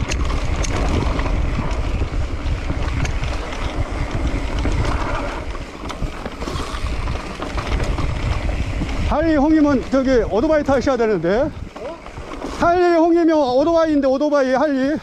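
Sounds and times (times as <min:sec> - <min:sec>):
bike rattles and clicks: 0:00.0 - 0:15.0
wind buffeting microphone: 0:00.0 - 0:15.0.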